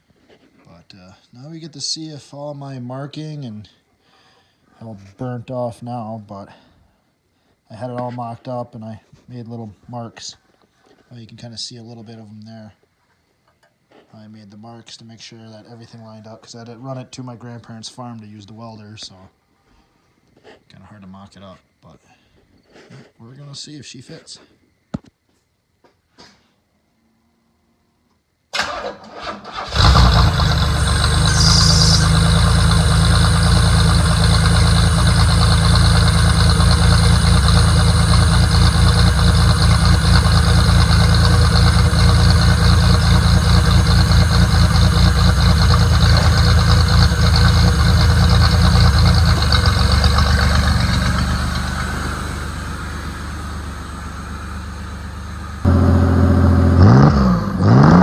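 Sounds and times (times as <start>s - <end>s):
car engine idling and revving: 29.7s - 58.0s.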